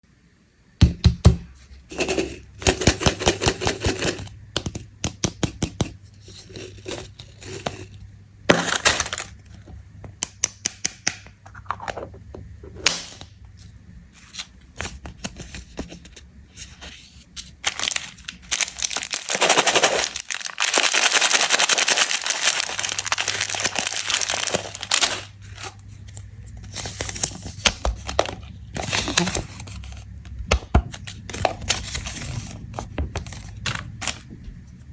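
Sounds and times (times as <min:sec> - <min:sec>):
packaging being torn: 0:08.5 - 0:09.4, 0:17.4 - 0:29.9
plastic wrappers crinkling: 0:08.5 - 0:09.5, 0:14.2 - 0:30.3, 0:30.9 - 0:34.8.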